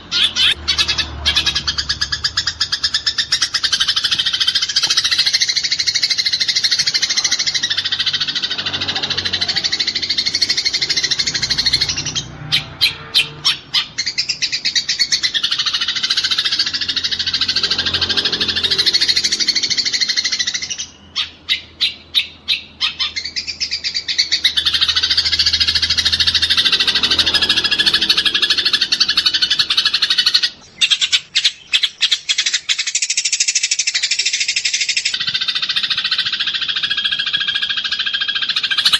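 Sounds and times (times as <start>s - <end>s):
sparrows chattering: 0.0s - 38.9s.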